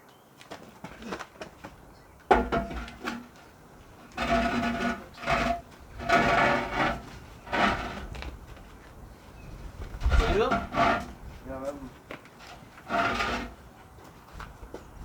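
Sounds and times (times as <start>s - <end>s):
rough scraping strokes with ringing: 4.0s - 8.1s, 10.2s - 11.3s, 12.4s - 13.6s.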